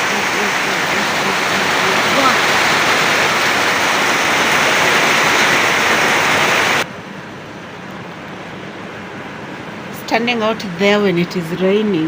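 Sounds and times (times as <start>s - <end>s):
heavy rain falling: 0.0s - 6.9s.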